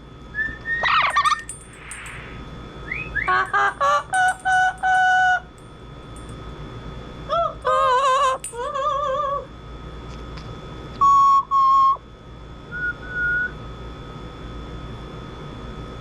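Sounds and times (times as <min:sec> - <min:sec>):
parrot whistling: 0:00.3 - 0:01.5, 0:02.8 - 0:05.3.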